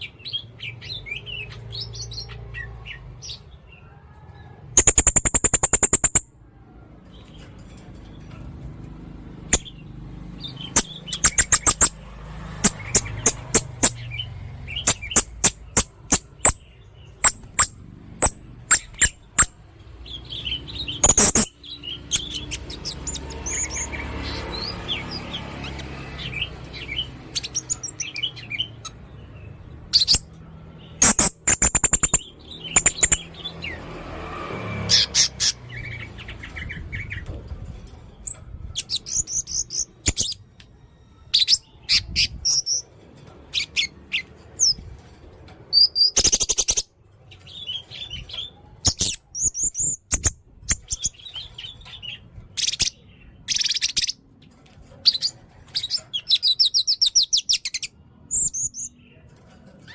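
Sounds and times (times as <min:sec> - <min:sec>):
parrot chirping rapidly: 0:04.8 - 0:06.3, 0:10.4 - 0:19.6, 0:20.2 - 0:29.0, 0:29.6 - 0:30.3, 0:31.0 - 0:33.7, 0:34.9 - 0:37.1, 0:45.8 - 0:46.9, 0:48.9 - 0:54.2.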